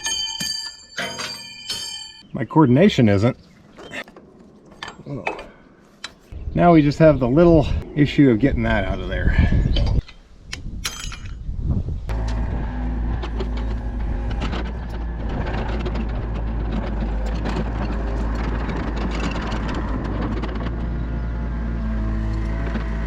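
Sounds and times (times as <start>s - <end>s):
knocks and clatters: 0.0s - 2.2s, 12.1s - 21.0s
sharp metallic clinks: 0.0s - 2.3s
heavy machine engine running: 12.1s - 23.0s.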